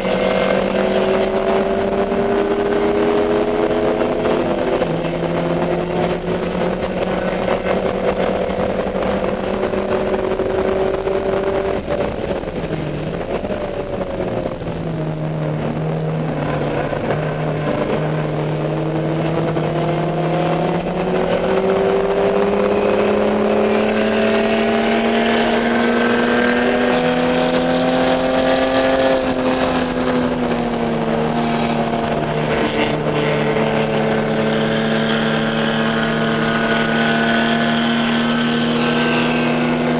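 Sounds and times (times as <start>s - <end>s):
race car engine: 0.0s - 39.9s.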